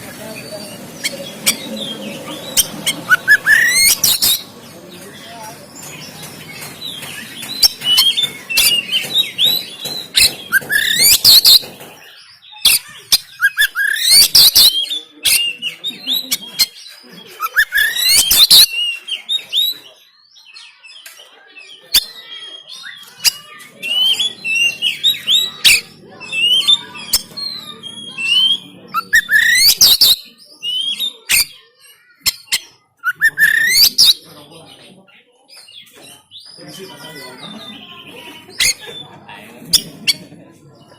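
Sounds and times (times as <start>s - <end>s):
bird singing whistled notes: 0.4s - 4.5s, 21.9s - 31.6s, 32.4s - 34.2s.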